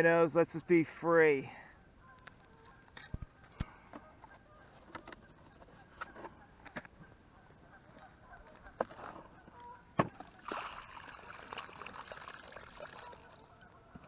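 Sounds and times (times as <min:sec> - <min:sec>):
water pouring and splashing: 0:10.2 - 0:13.6.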